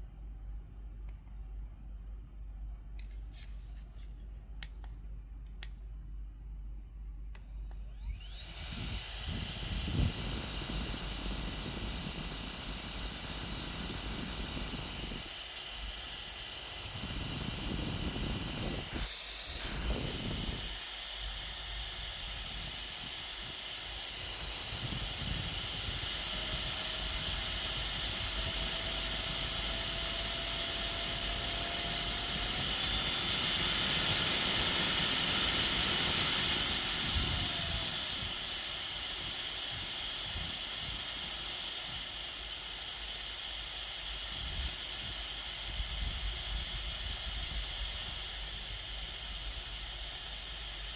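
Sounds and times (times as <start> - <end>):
high-pitched fan motor whine: 6.2 - 50.9.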